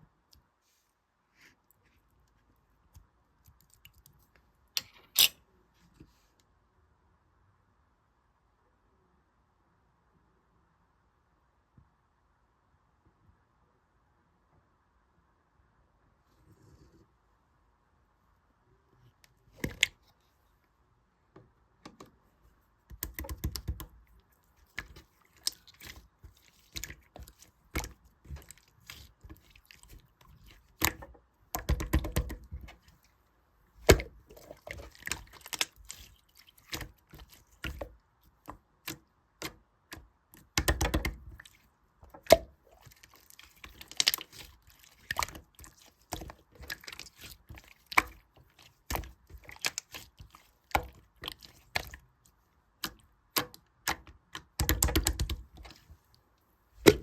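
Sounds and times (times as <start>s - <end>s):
slime crackling: 33.8s - 38.0s, 40.6s - 52.0s.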